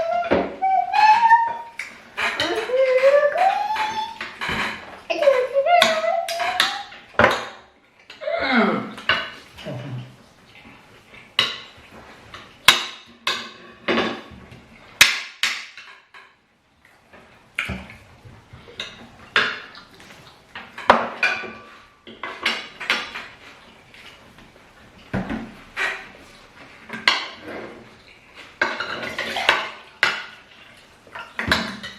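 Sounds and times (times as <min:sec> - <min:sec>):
cutlery clinking on plates: 0:01.8 - 0:05.1, 0:18.6 - 0:24.2, 0:25.1 - 0:31.9.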